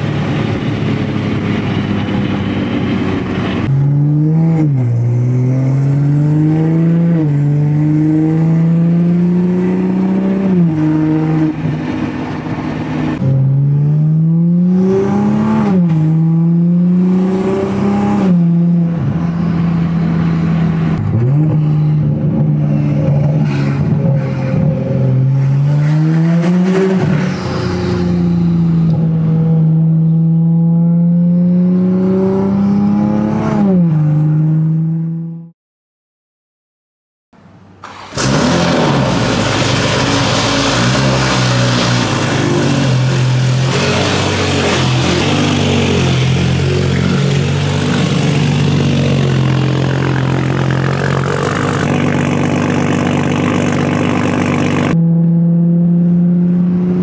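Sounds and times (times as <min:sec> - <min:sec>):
car engine accelerating: 0:37.8 - 0:57.0.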